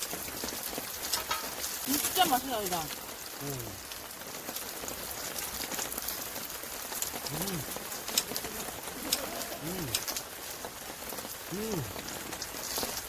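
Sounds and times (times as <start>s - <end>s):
steady rain: 0.0s - 13.0s
person humming: 3.4s - 3.8s, 7.3s - 7.7s, 9.0s - 10.1s, 11.5s - 12.0s.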